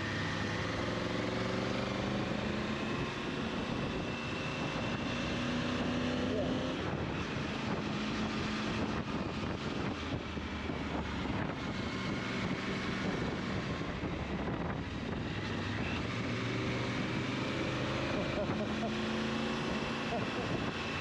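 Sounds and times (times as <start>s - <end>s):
wind noise on microphone: 6.8s - 17.3s.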